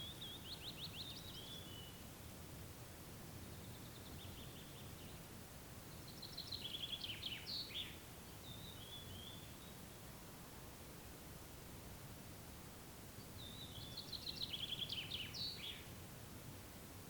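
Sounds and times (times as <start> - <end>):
songbirds singing: 0.0 - 2.2, 3.4 - 10.1, 13.1 - 16.0.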